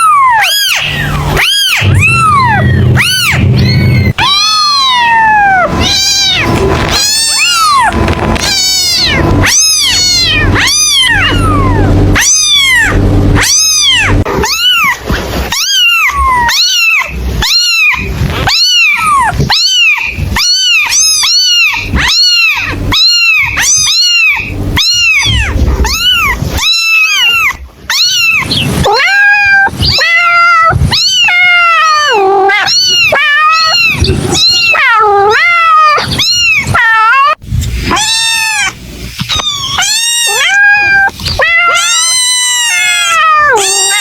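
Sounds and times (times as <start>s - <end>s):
kitten mewing: 0.0s - 44.0s
steady low hum: 0.1s - 29.0s.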